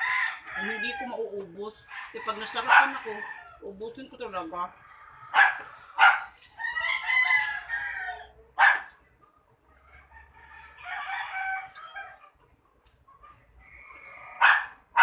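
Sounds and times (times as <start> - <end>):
rooster crowing: 0.0 - 1.2, 1.9 - 3.6, 4.9 - 8.8, 10.0 - 12.3
dog barking: 2.6 - 3.0, 5.3 - 6.4, 8.6 - 9.0, 14.4 - 15.0.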